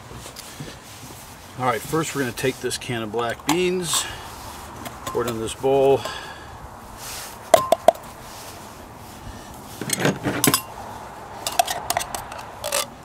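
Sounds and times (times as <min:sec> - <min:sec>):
metal can clinking on a bowl: 0:11.5 - 0:12.9.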